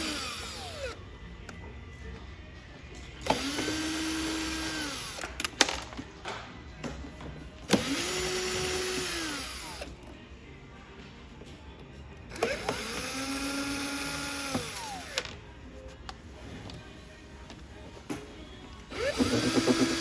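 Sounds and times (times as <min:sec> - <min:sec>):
power screwdriver spinning: 0:00.0 - 0:01.0, 0:03.3 - 0:05.4, 0:12.3 - 0:15.4, 0:18.9 - 0:20.0.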